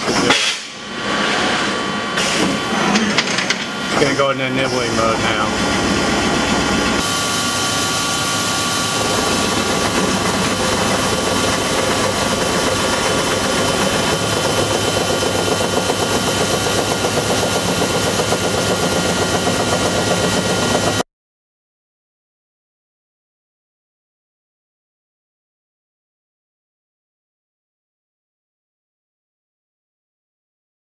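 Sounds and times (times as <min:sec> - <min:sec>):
machine whine: 0:00.0 - 0:21.0.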